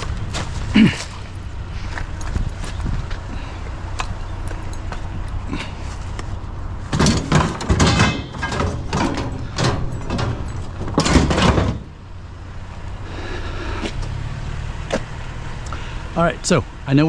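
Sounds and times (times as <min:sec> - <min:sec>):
low engine hum: 0:00.0 - 0:17.0
clattering knocks on vehicle: 0:06.9 - 0:12.0
vehicle door: 0:06.9 - 0:12.1.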